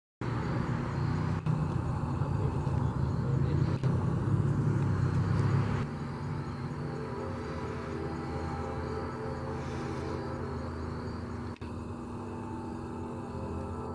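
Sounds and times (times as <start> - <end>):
heavy vehicle engine rumble: 0.2 - 13.9.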